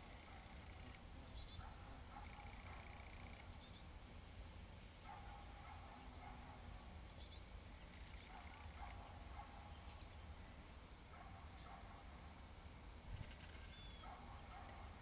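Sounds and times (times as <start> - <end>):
distant birds calling: 13.2 - 15.0.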